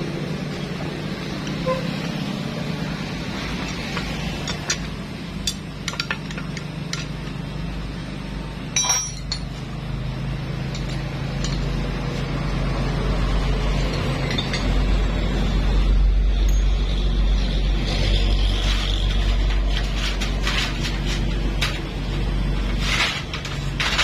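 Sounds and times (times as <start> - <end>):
metal engine parts clinking: 3.7 - 7.5, 8.6 - 12.2, 13.4 - 15.4, 16.3 - 24.0.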